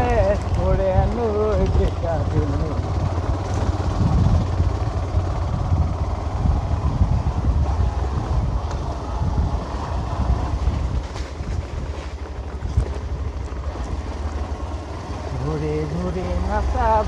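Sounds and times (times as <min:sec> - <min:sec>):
motorcycle engine rumble: 0:00.0 - 0:17.0
wind buffeting microphone: 0:00.0 - 0:17.0.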